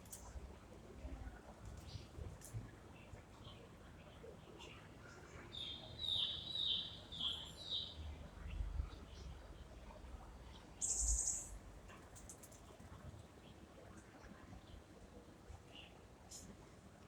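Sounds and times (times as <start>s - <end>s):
small bird chirping: 10.8s - 11.6s.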